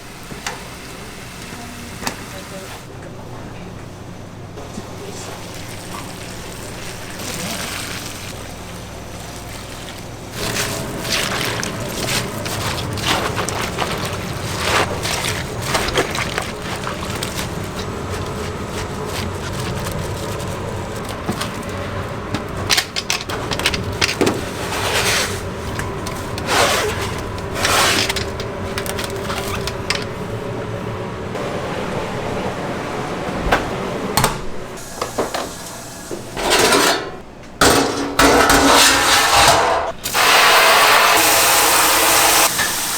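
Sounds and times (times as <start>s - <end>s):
water running: 4.6s - 36.4s, 39.9s - 42.9s
steady hum: 8.0s - 40.0s
utensils and pans clattering: 10.4s - 30.3s, 36.3s - 40.2s.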